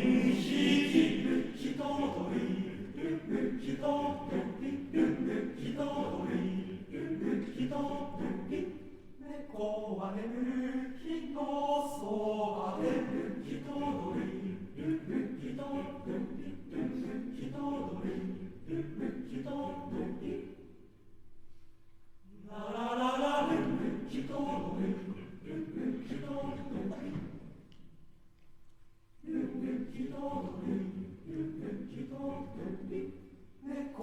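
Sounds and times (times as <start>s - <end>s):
men's choir singing a cappella: 0.0s - 20.8s, 22.3s - 27.7s, 29.2s - 34.0s.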